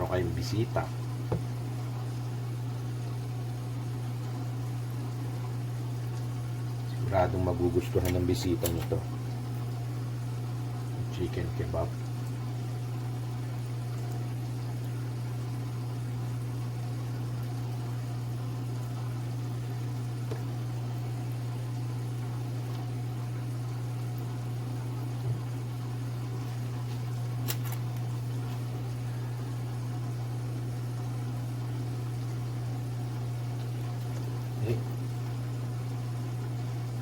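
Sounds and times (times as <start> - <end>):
fan motor humming: 0.0 - 37.0.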